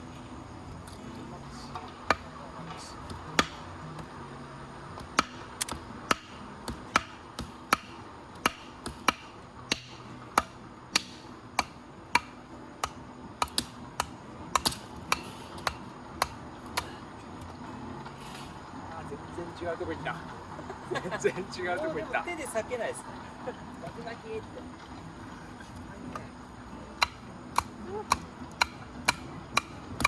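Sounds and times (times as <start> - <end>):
blade splitting firewood: 1.7 - 18.8, 25.6 - 30.0
sharp wooden knocks: 5.0 - 16.9.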